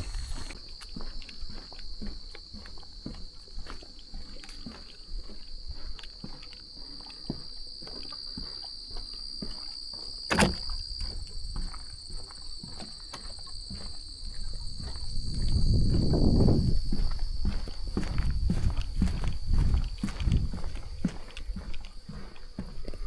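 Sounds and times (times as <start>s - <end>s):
high-pitched insect drone: 0.0s - 3.6s
footsteps on a trail: 0.0s - 23.0s
sharp knock: 10.3s - 10.6s.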